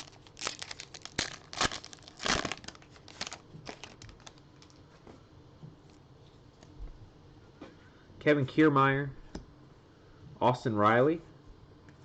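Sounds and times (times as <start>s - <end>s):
wrapper crinkling and tearing: 0.0s - 4.8s.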